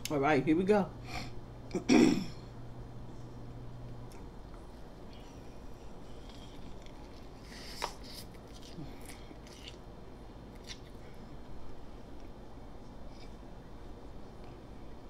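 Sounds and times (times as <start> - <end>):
person chewing a sandwich: 4.0 - 13.5.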